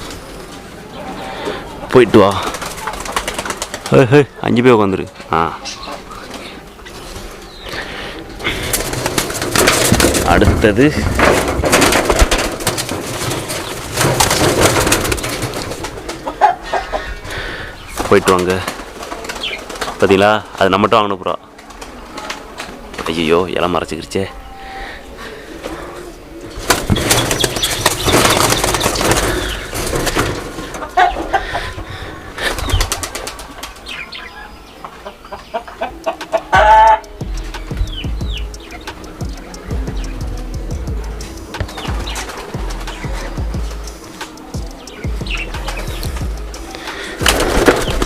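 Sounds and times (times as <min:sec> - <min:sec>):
pigeons cooing: 0:00.0 - 0:20.6, 0:24.2 - 0:48.0
birds rustling and clicking in cage: 0:02.2 - 0:04.0, 0:08.5 - 0:20.7, 0:26.4 - 0:31.7, 0:32.4 - 0:34.2, 0:36.0 - 0:48.0.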